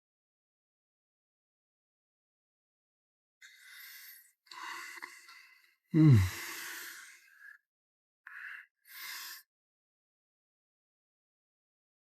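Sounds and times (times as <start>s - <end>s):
person sighing: 6.0s - 6.5s
person exhaling breathily: 6.0s - 6.7s.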